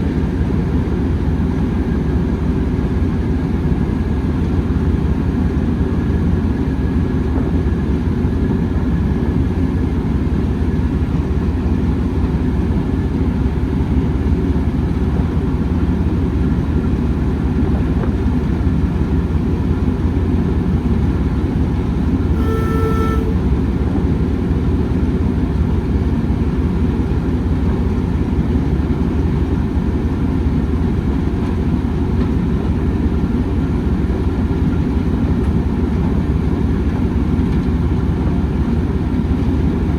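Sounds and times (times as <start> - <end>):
train rumbling: 0.1 - 39.9
train horn toot: 22.3 - 23.7.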